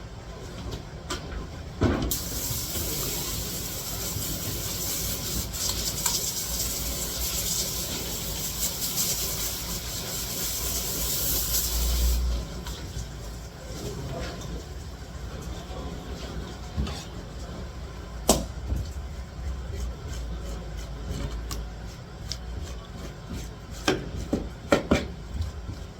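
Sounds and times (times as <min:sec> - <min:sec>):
water running from a tap: 0:02.1 - 0:12.3.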